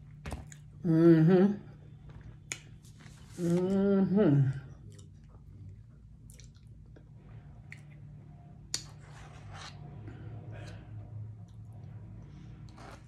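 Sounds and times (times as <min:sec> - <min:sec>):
low steady hum: 0:00.0 - 0:13.0
person chewing food: 0:00.4 - 0:00.8, 0:04.7 - 0:09.1.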